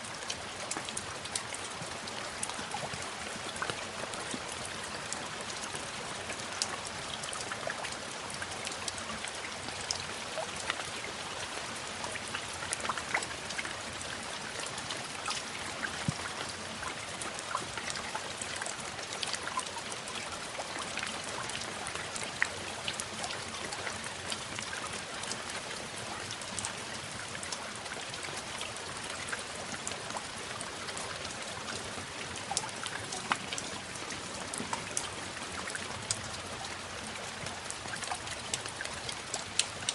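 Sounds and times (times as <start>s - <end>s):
raindrops ticking: 0.0s - 39.9s
steady rain hiss: 0.0s - 39.9s.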